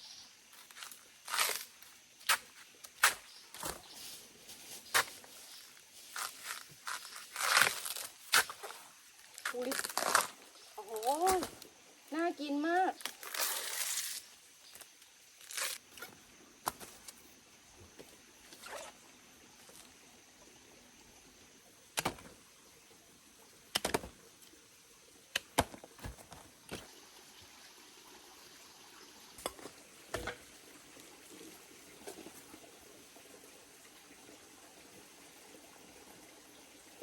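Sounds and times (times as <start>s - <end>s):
banana stem sheaths snapping: 9.3s - 11.6s, 14.8s - 15.8s.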